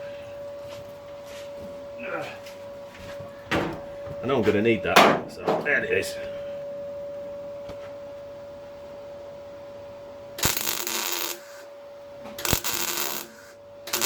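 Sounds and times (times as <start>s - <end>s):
steady welder hum: 3.7s - 14.0s
welder crackling bursts: 10.4s - 11.7s, 12.4s - 14.0s.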